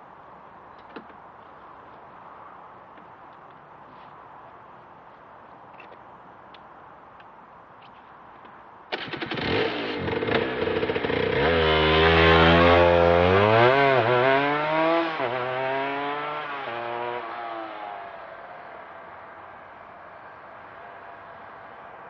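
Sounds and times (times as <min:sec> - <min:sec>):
motorcycle accelerating past: 0:09.0 - 0:18.3.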